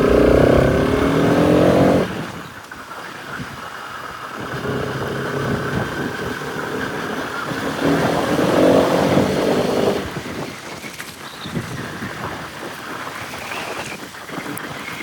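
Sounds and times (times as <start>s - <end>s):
motorcycle engine running: 0.0s - 2.2s.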